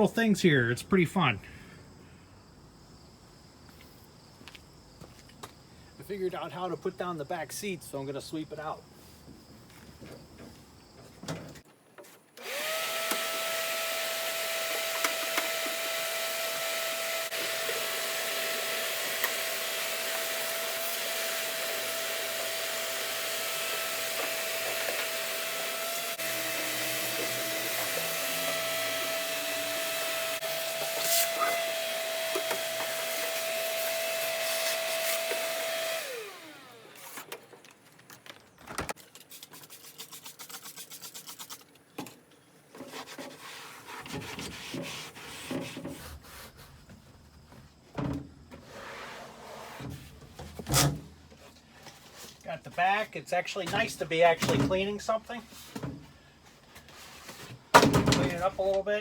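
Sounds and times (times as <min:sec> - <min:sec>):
vacuum cleaner whining: 0:12.4 - 0:37.4.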